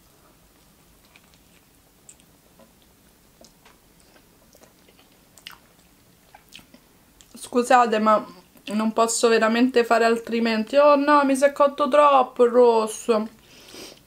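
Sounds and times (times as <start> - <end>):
person chewing a hamburger: 0.4 - 7.4
mouth clicks and smacks: 1.0 - 7.4.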